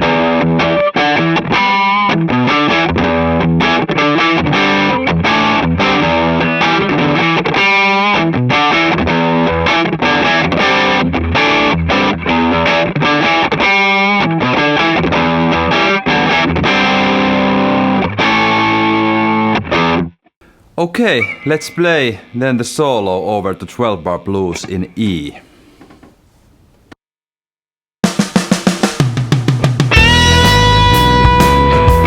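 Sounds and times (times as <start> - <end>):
distorted electric guitar riffs: 0.0 - 20.0, 29.9 - 32.0.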